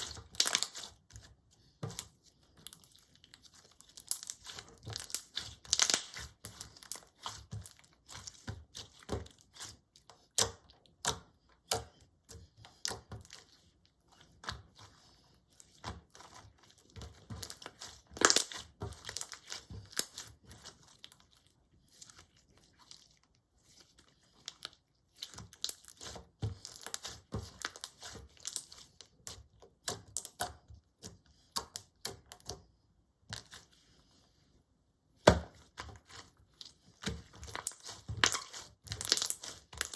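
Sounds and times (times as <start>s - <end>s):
slime popping and crackling: 0.0s - 1.0s, 2.6s - 9.6s, 17.0s - 21.1s, 35.3s - 39.9s.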